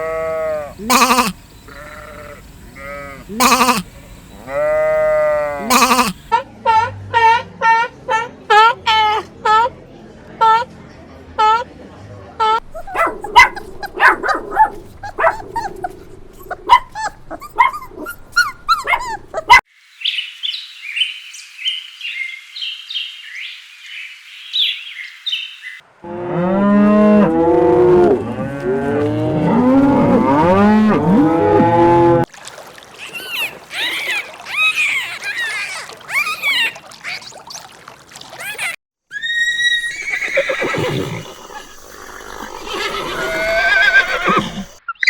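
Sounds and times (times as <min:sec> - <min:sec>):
animal calls: 0:00.0 - 0:09.7, 0:12.4 - 0:19.6, 0:33.0 - 0:37.7, 0:38.4 - 0:45.0.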